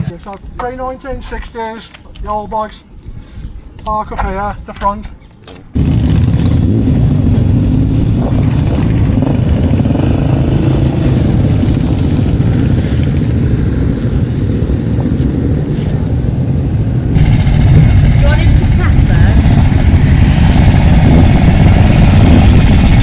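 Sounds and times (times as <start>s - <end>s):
motorcycle engine running: 5.8s - 23.0s.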